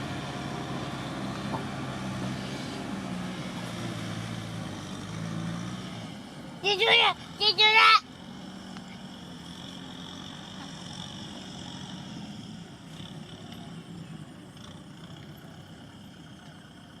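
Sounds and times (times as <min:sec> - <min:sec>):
tractor diesel engine: 0:00.0 - 0:17.0.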